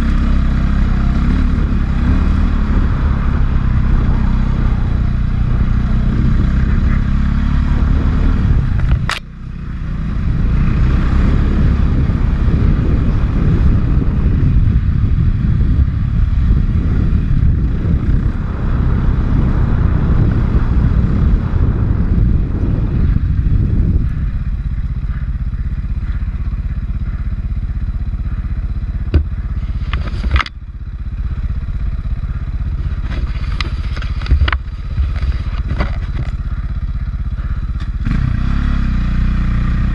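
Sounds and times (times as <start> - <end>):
dirt bike engine running: 0.0 - 39.9
rattles and scrapes: 29.0 - 30.6, 32.6 - 36.9.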